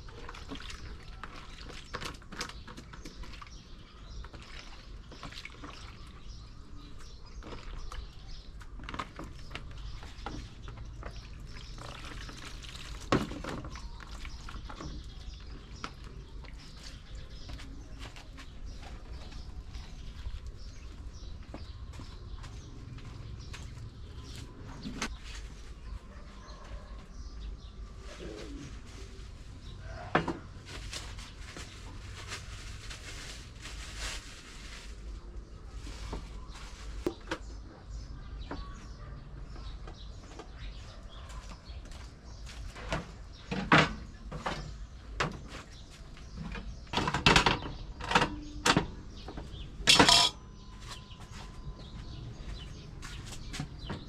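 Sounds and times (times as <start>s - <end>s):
birds calling: 36.3s - 54.0s
kitchen utensils knocking: 49.9s - 50.4s.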